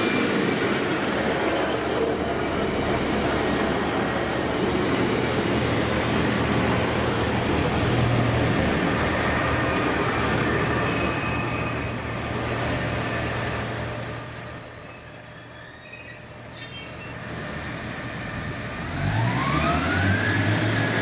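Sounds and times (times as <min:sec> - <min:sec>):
train wheels rumbling on rail: 0:00.0 - 0:16.5
high-pitched wheel squeal: 0:08.7 - 0:17.5.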